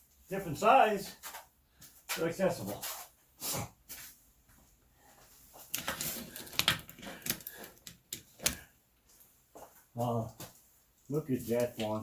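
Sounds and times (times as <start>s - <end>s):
hand tools clicking on bolts: 5.7s - 8.6s.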